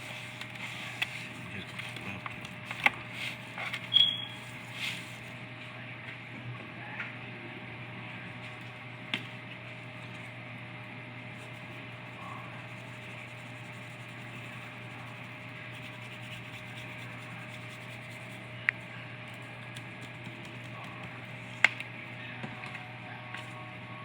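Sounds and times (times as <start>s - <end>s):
steady hum and hiss: 0.0s - 24.0s
hands rubbing seasoning into meat: 12.6s - 18.4s.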